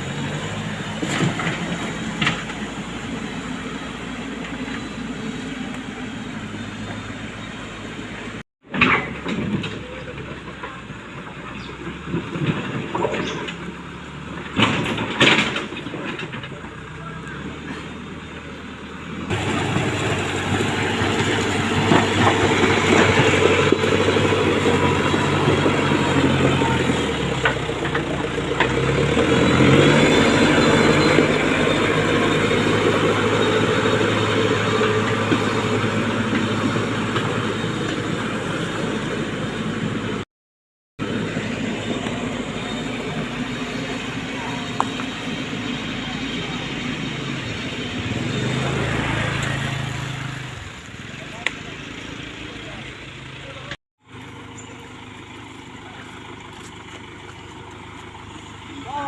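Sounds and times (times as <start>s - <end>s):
diesel engine under load: 0.0s - 40.3s, 41.0s - 59.0s
machinery running: 19.3s - 40.2s.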